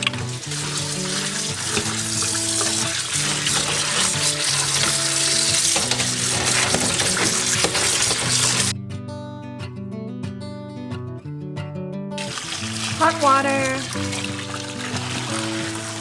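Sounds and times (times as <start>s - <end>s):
tap water running into sink: 0.0s - 8.7s, 12.2s - 16.0s
background music: 12.2s - 16.0s.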